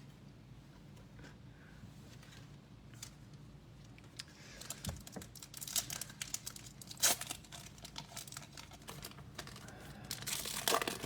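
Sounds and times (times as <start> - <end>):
foil pack tearing and crinkling: 5.0 - 11.0.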